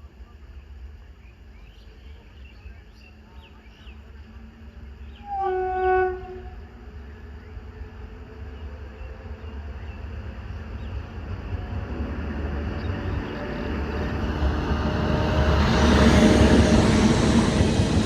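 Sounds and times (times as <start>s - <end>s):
train rumble: 0.0s - 18.0s
train horn blast: 5.1s - 6.8s.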